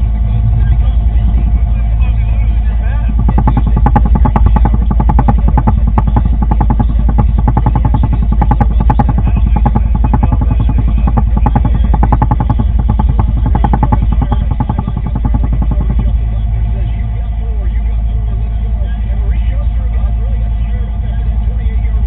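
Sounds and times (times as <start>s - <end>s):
engine running with rapid pulse: 0.0s - 22.0s.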